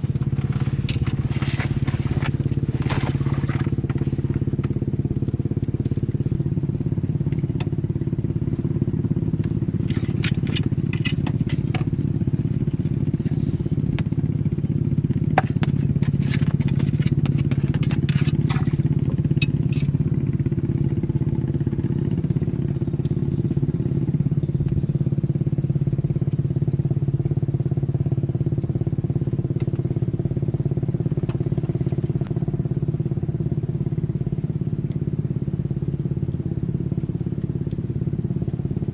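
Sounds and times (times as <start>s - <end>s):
small boat engine running: 0.0s - 38.9s
clicks and rattles: 0.1s - 4.8s, 9.4s - 12.0s, 15.4s - 20.0s.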